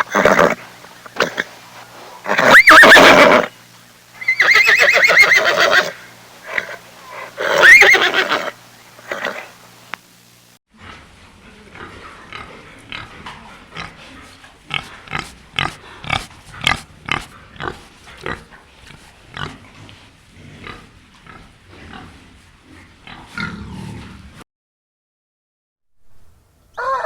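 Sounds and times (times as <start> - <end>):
pig grunting: 10.8 - 24.4.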